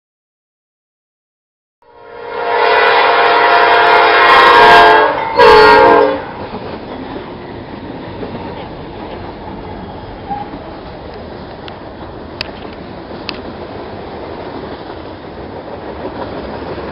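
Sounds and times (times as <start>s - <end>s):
train horn blasts: 1.8s - 6.4s
train rumbling past: 1.9s - 16.9s.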